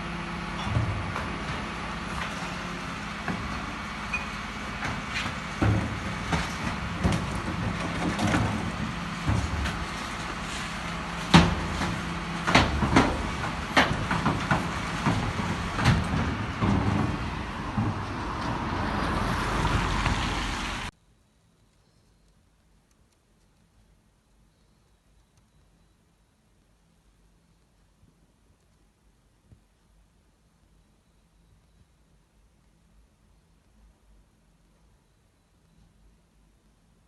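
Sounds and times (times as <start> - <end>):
garbage truck engine running: 0.0 - 20.9
metallic clanks and knocks: 0.6 - 18.7.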